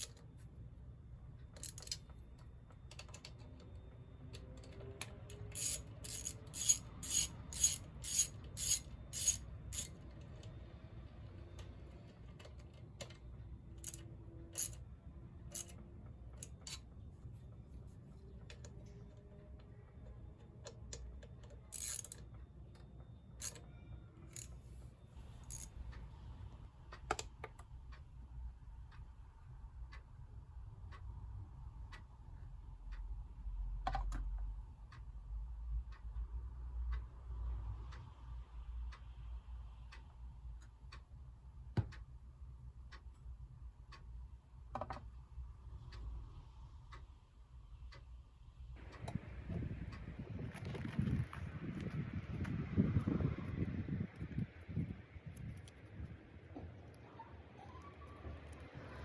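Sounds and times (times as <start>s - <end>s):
metallic clicks of hand tools: 0.0s - 0.2s, 1.6s - 2.1s, 4.4s - 10.5s, 13.8s - 14.8s, 15.5s - 15.8s, 20.9s - 22.3s, 23.4s - 23.7s, 25.4s - 25.7s.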